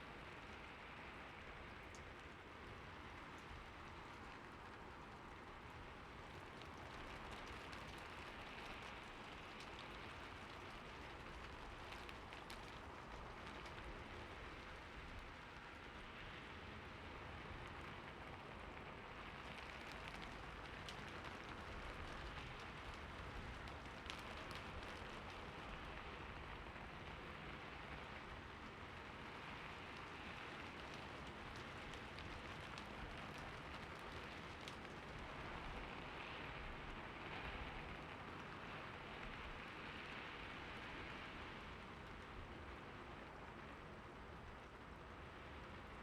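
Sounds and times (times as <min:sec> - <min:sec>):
light rain falling: 0:00.0 - 0:46.0
raindrops ticking: 0:19.4 - 0:26.1, 0:29.6 - 0:35.9.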